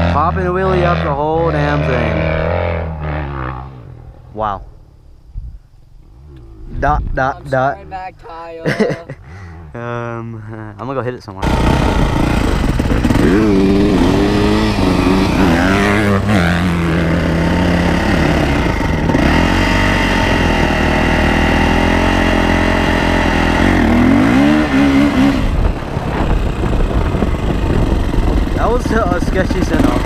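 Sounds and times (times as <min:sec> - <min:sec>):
dirt bike engine revving: 0:00.0 - 0:04.5, 0:11.4 - 0:30.0.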